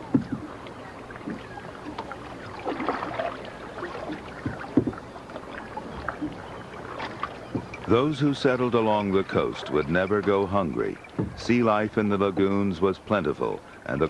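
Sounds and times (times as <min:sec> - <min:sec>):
canoe paddles splashing in water: 0:00.0 - 0:14.0
sharp knocks: 0:00.1 - 0:00.5, 0:04.4 - 0:05.0, 0:11.1 - 0:11.4.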